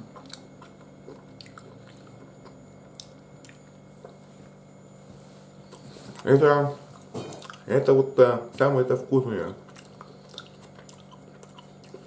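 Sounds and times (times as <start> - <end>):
low steady hum: 0.0 - 12.0
wet chewing and mouth clicks: 0.1 - 4.2, 6.9 - 7.7, 9.6 - 12.0.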